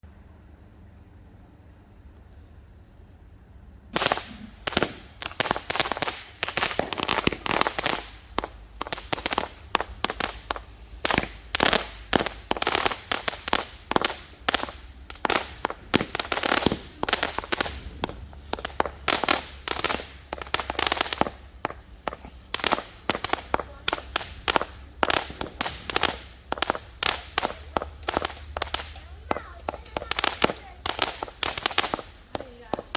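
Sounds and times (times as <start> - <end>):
fireworks popping: 4.0 - 32.9.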